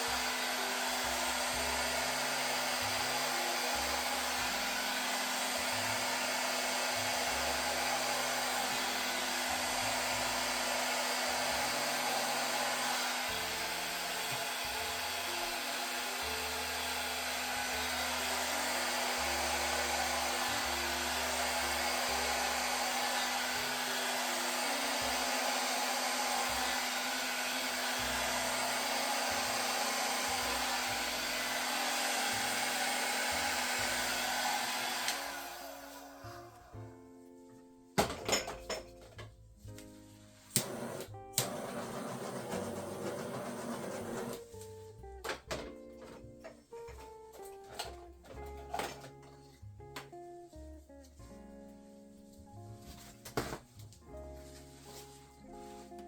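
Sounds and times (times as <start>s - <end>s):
hot-air blower rushing hiss: 0.0s - 36.6s, 40.5s - 44.4s
soft background music: 0.1s - 56.0s.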